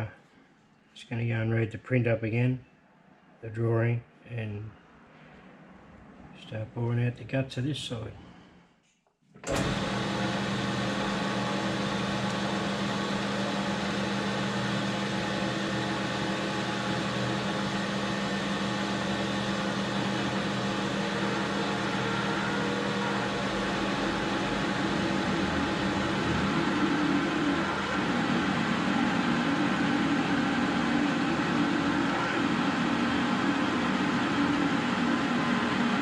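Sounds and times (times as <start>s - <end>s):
metal lathe running: 9.5s - 36.0s.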